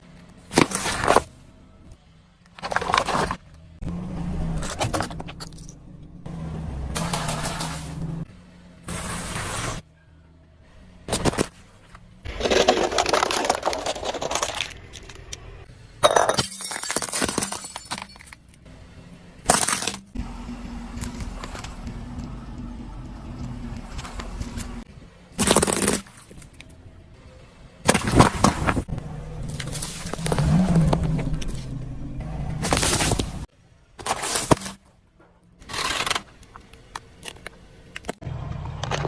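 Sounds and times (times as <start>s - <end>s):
objects crunching under car: 2.5s - 3.7s, 11.1s - 15.5s, 27.9s - 34.9s
steady low hum: 18.6s - 25.3s.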